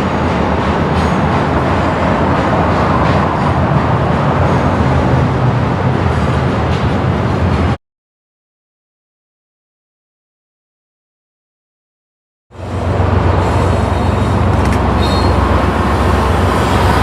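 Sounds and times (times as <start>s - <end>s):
freight train passing: 0.0s - 7.8s, 12.5s - 17.0s.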